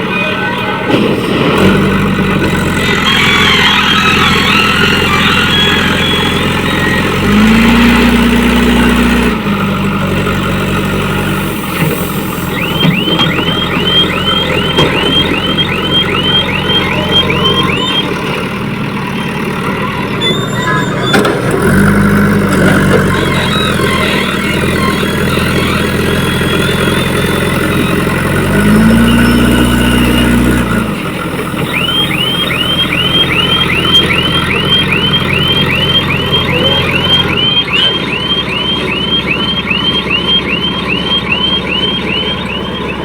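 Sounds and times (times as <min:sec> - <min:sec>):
diesel engine running and revving: 0:00.0 - 0:43.0
short rising chirps: 0:02.8 - 0:08.4, 0:11.4 - 0:18.2, 0:31.5 - 0:43.0.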